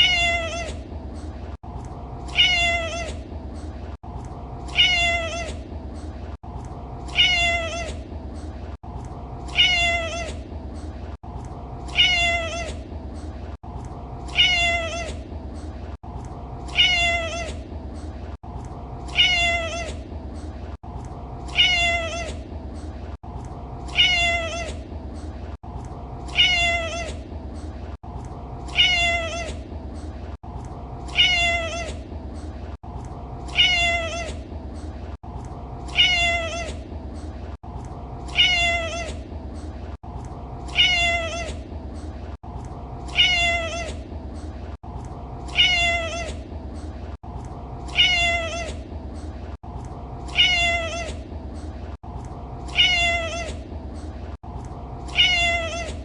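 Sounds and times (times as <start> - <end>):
cat meowing: 0.0 - 0.8, 2.3 - 3.2, 4.7 - 5.6, 7.1 - 8.0, 9.5 - 10.4, 11.9 - 12.8, 14.3 - 15.2, 16.7 - 17.6, 19.1 - 20.0, 21.5 - 22.4, 23.9 - 24.8, 26.3 - 27.2, 28.7 - 29.6, 31.1 - 32.0, 33.5 - 34.4, 35.9 - 36.8, 38.3 - 39.2, 40.7 - 41.6, 43.1 - 44.0, 45.5 - 46.4, 47.9 - 48.8, 50.3 - 51.2, 52.7 - 53.6, 55.1 - 56.0.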